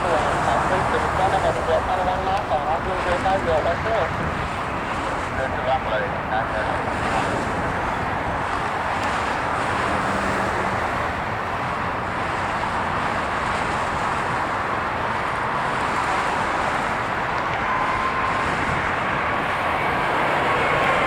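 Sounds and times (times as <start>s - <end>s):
jet engine rushing: 0.0s - 8.9s, 16.0s - 21.0s.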